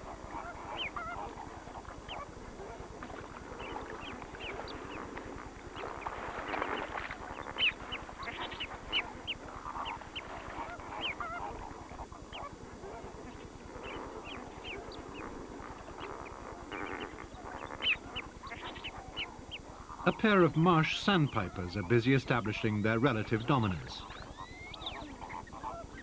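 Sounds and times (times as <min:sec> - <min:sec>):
waterbirds honking: 0:16.6 - 0:26.0.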